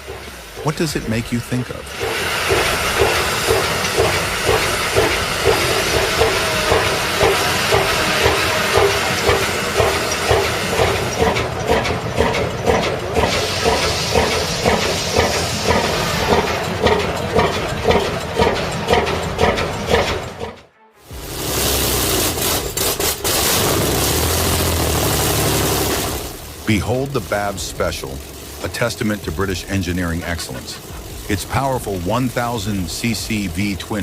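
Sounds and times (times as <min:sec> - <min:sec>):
large engine running: 0:00.0 - 0:34.0
steady hiss: 0:25.1 - 0:34.0.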